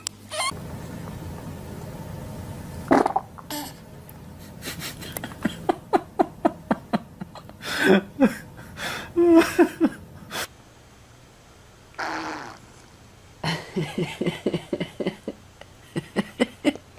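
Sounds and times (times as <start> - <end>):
person laughing: 4.4 - 10.5, 13.4 - 16.9.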